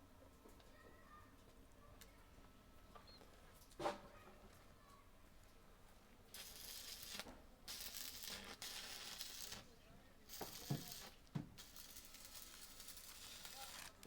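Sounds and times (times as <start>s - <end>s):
arc welding crackling hiss: 6.3s - 14.0s.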